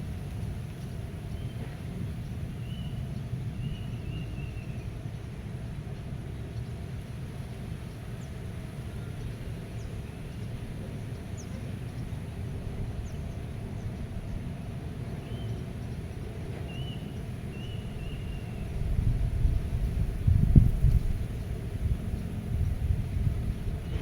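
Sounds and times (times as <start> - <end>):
wind rumbling: 18.6 - 24.0.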